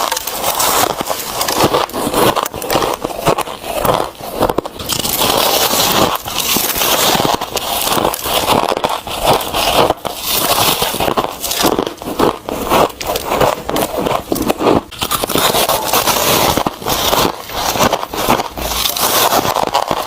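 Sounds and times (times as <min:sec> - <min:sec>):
ice crunched between teeth: 0:00.0 - 0:20.0.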